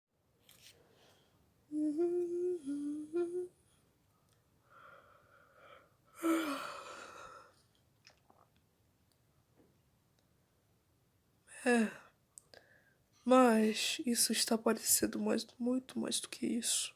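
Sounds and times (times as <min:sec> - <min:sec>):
person humming: 0:01.7 - 0:03.6
breathy sigh: 0:04.7 - 0:07.5.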